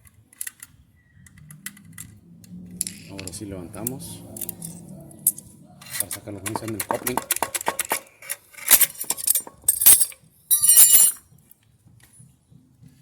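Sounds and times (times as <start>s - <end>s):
plastic and metal parts clicking: 0.0s - 2.2s, 4.4s - 10.2s
scraping rattles: 1.4s - 11.2s
bright ringing clink: 9.2s - 11.2s.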